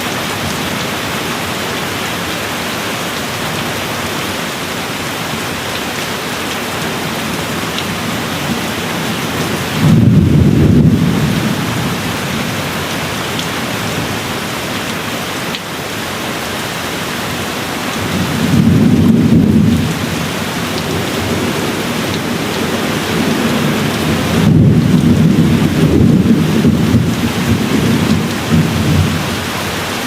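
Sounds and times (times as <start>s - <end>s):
steady rain falling: 0.0s - 30.0s
low rolling thunder: 7.0s - 14.4s, 18.0s - 29.5s.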